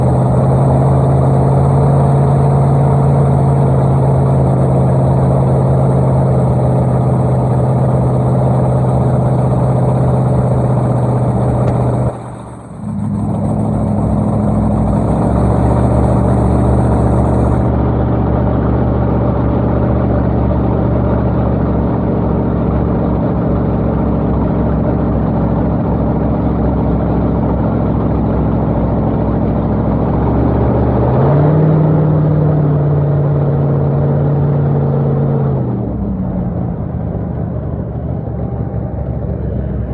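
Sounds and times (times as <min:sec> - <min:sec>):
boat engine running: 0:00.0 - 0:31.2, 0:36.0 - 0:39.9.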